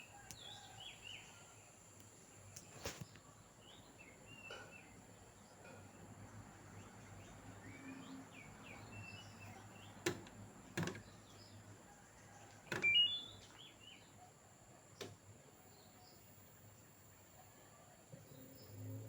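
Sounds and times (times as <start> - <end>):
faint bird chirps: 0.0 - 6.1, 11.0 - 19.0.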